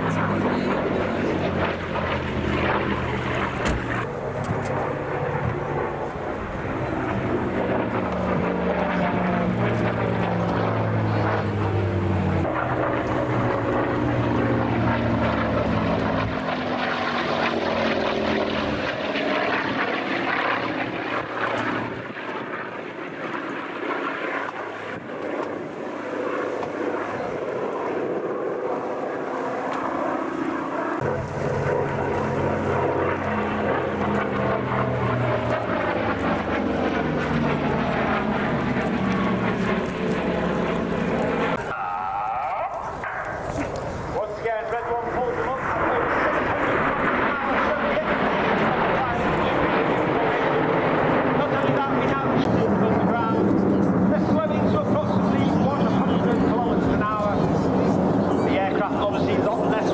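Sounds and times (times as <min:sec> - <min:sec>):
propeller aircraft engine: 0:00.0 - 0:59.9.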